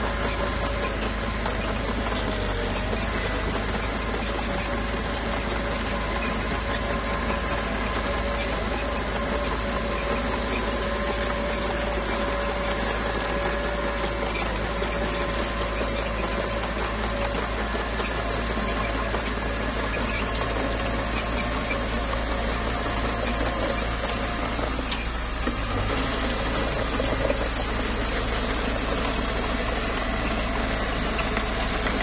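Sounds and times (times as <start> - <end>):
bulldozer diesel engine running: 0.0 - 32.0.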